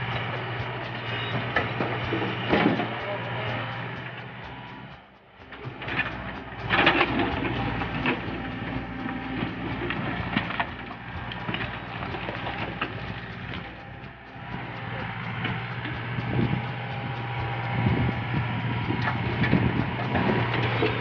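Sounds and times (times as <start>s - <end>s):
backhoe diesel engine running: 0.0s - 21.0s
clanking knocks of machine: 0.2s - 3.6s.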